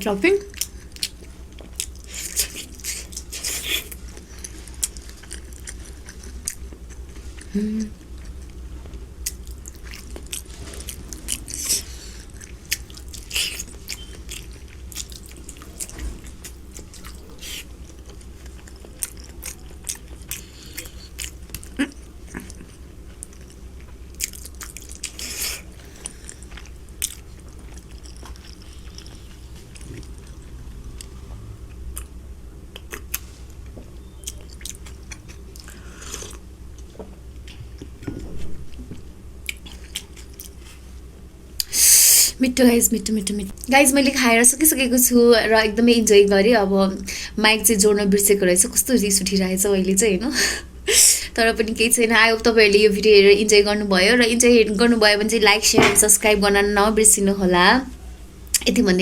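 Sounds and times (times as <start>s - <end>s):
steady low hum: 0.0s - 59.0s
person chewing with wet smacks: 0.4s - 8.6s, 9.2s - 40.8s.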